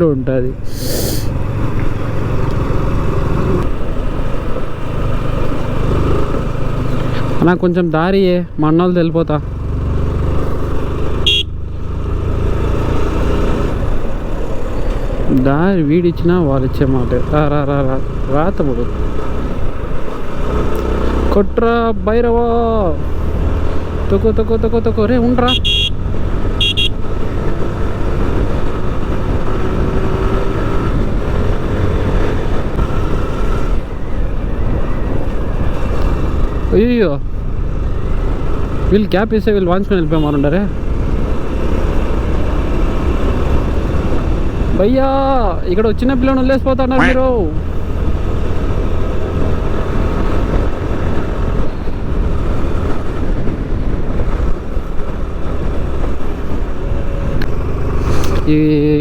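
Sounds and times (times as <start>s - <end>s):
motorcycle engine rumbling: 0.0s - 20.4s, 21.3s - 59.0s
motorcycle engine running: 9.3s - 20.3s, 23.2s - 36.7s
wind rumble on microphone: 47.5s - 59.0s.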